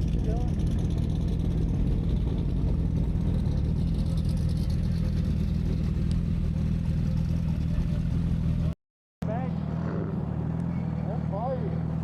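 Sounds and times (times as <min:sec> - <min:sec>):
vehicle engine idling: 0:00.0 - 0:09.6.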